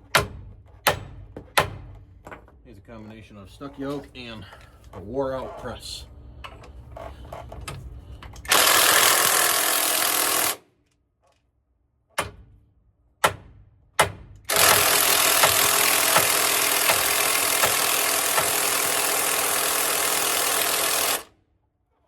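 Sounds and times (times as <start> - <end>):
sharp metal knocks: 0.0 - 2.5
pneumatic tool rattling: 8.3 - 10.6, 14.5 - 21.3.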